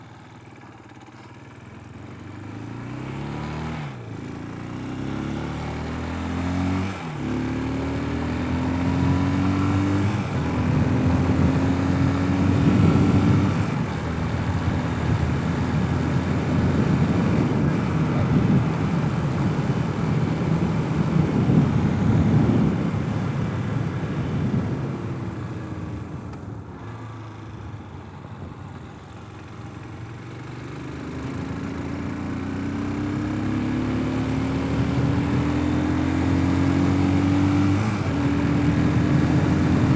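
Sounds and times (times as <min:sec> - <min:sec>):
motorcycle engine accelerating: 0:00.0 - 0:39.9
wind rush: 0:09.6 - 0:25.4.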